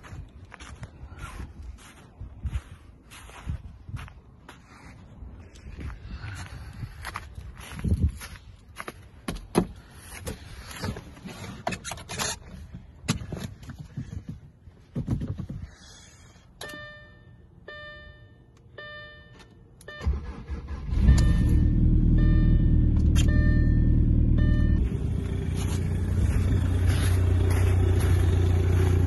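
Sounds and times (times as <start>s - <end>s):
car warning chime beeping: 16.6s - 24.9s
car engine cranking and running: 19.8s - 29.0s.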